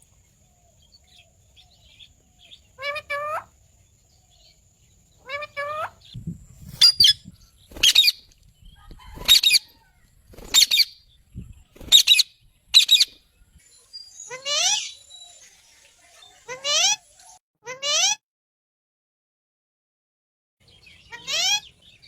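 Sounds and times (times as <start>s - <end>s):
parrots screeching: 2.8s - 3.5s, 14.2s - 15.1s, 16.3s - 17.1s, 21.1s - 21.7s.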